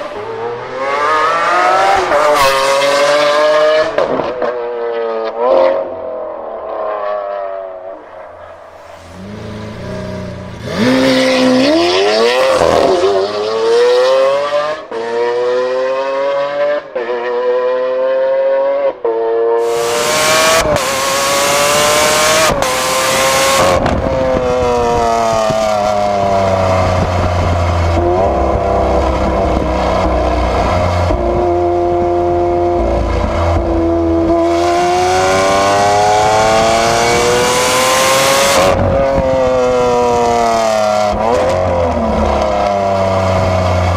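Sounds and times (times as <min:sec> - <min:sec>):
sports car accelerating with upshifts: 0:00.0 - 0:43.9.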